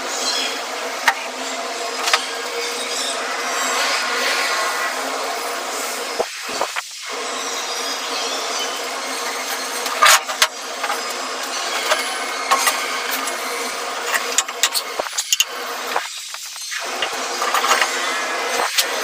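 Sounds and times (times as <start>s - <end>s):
elevator machine humming: 0.0s - 19.0s.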